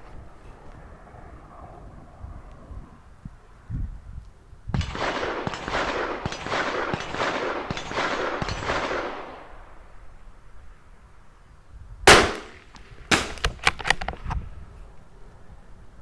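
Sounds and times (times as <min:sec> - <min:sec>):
distant gunshots echoing: 0:04.8 - 0:09.9, 0:12.1 - 0:14.0.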